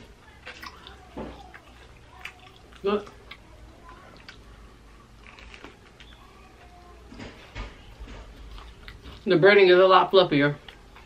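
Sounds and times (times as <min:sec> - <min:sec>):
person chewing food: 0:00.0 - 0:06.2, 0:07.9 - 0:09.4, 0:10.6 - 0:11.0.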